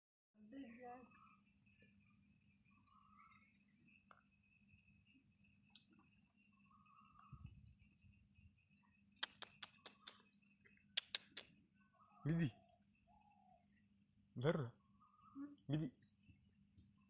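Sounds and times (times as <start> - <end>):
small bird chirping: 0.6 - 13.8
sharp clicks: 9.2 - 10.4, 11.0 - 11.5.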